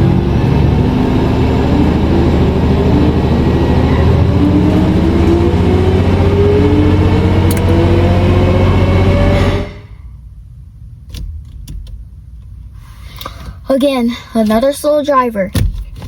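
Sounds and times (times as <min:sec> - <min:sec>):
car engine accelerating: 0:00.0 - 0:10.1.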